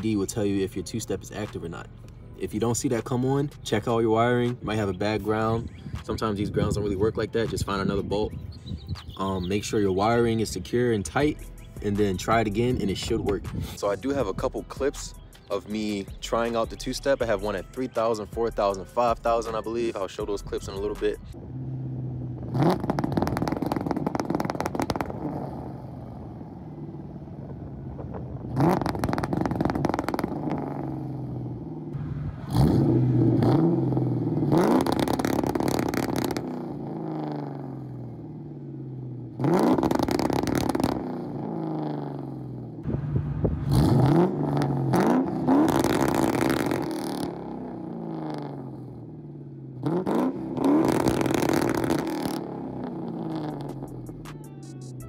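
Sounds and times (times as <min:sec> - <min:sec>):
car engine revving against limiter: 0:21.4 - 0:54.3.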